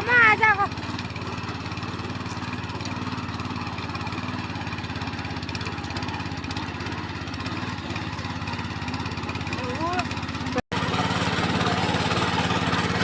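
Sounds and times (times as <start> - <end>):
tractor engine chugging: 0.0 - 13.0.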